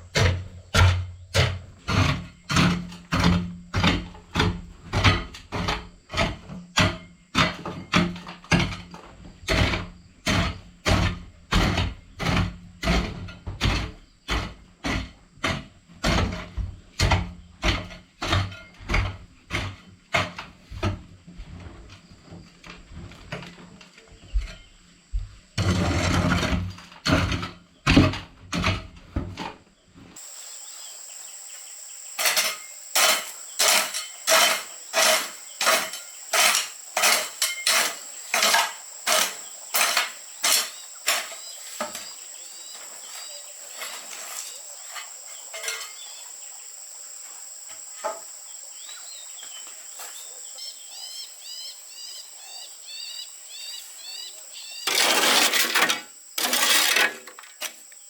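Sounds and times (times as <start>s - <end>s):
high insect drone: 30.0s - 58.0s
bird chirps: 30.2s - 47.0s, 48.2s - 54.9s
hand tool striking hard material: 31.0s - 46.3s.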